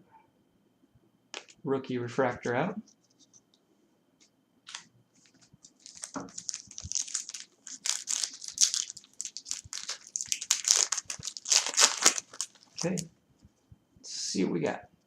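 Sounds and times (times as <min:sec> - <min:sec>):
foil wrapper crinkling and tearing: 0:04.7 - 0:13.1.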